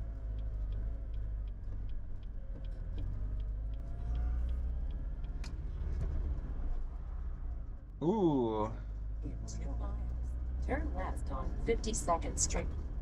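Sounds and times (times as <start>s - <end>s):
faint regular ticking: 0.0s - 6.6s
road and engine rumble: 0.0s - 13.0s.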